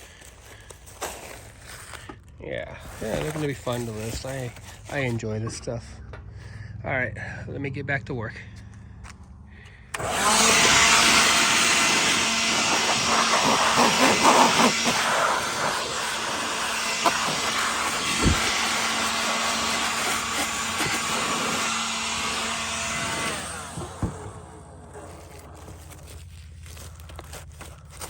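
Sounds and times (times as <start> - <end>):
vacuum cleaner running: 9.9 - 28.0.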